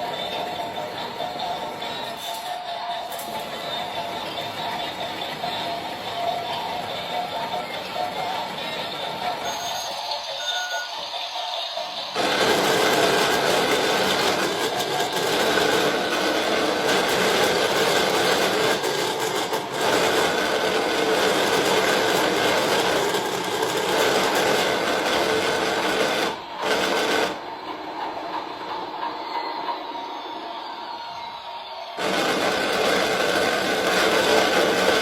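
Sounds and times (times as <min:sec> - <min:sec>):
machine whirring rattle: 0:11.6 - 0:29.8, 0:32.0 - 0:35.0.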